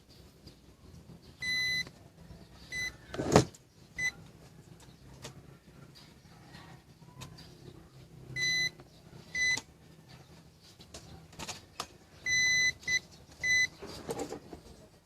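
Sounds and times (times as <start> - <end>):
electronic beeper short beeps: 1.4 - 1.9, 8.4 - 8.7, 12.3 - 13.7.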